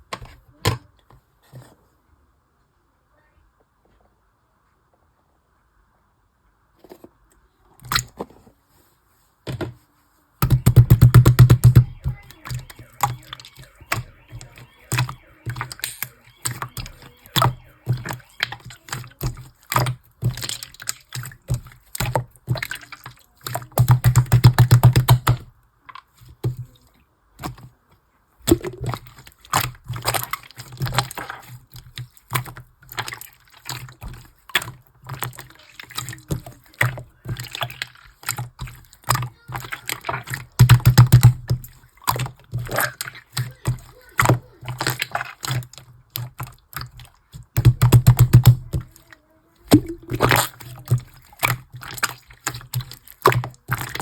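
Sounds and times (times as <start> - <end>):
slime squelching and popping: 10.4 - 25.5, 28.4 - 54.0.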